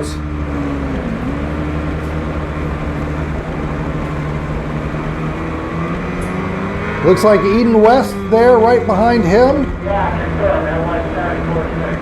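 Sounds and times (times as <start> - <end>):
racing motorcycle engines: 0.0 - 12.0.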